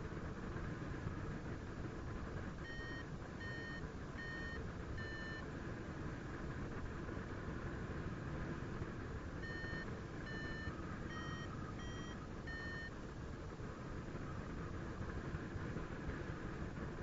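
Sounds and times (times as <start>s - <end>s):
variometer beeps: 2.6s - 5.5s, 9.4s - 13.0s.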